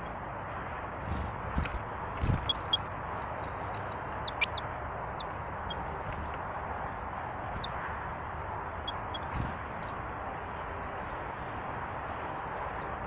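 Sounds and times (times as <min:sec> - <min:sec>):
small birds chirping: 0:01.1 - 0:06.7, 0:08.8 - 0:09.6.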